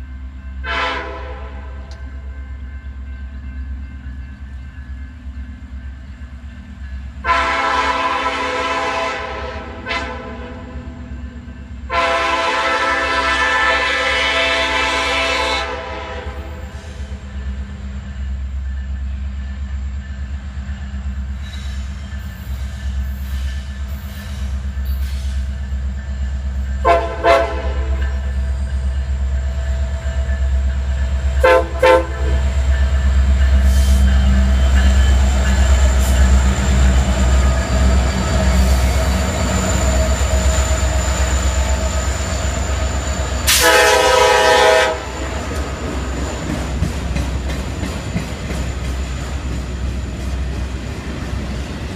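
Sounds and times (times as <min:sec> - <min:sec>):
diesel locomotive engine rumble: 0:00.0 - 0:51.9
locomotive air horn blasts: 0:00.6 - 0:01.9, 0:07.2 - 0:10.8, 0:11.9 - 0:17.2, 0:26.8 - 0:28.3, 0:31.4 - 0:32.5, 0:43.5 - 0:45.2.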